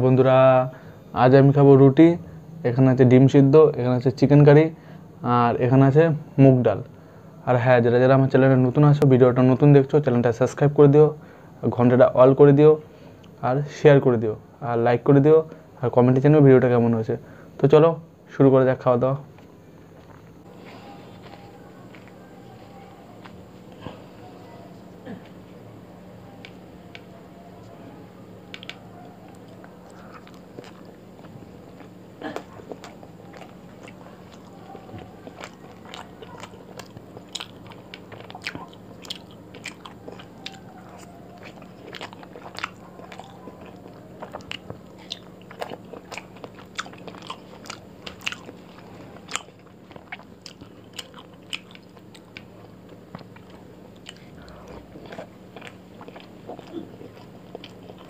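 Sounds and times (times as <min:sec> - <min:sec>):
steady low hum: 0:00.0 - 0:58.0
person chewing and lip-smacking: 0:26.3 - 0:58.0.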